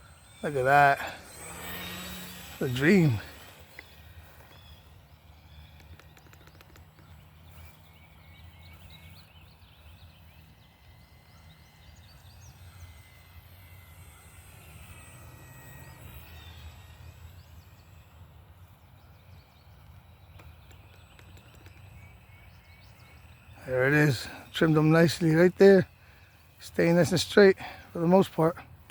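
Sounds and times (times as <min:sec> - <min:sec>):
model plane electric motor whine: 0:00.0 - 0:28.9.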